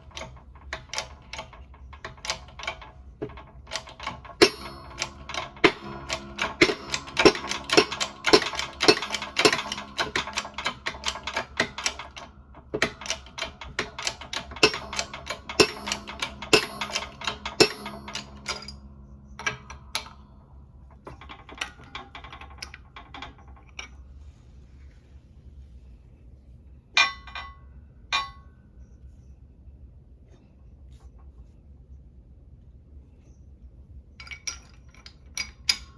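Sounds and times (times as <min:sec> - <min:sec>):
metallic clicking of hand tools: 0:00.0 - 0:20.3, 0:34.2 - 0:35.9.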